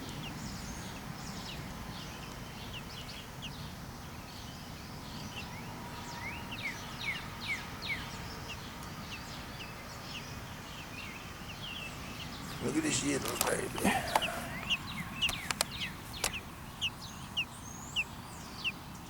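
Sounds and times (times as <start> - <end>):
baby bird chirping: 11.7 - 18.8
low background hum: 12.4 - 18.8.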